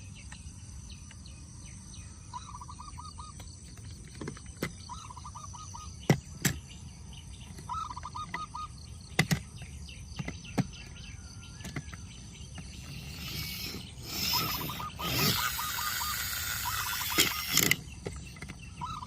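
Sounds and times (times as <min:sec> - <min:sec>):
bird chirping: 0:00.0 - 0:19.0
sharp clicks and knocks: 0:09.1 - 0:11.0, 0:16.3 - 0:18.6.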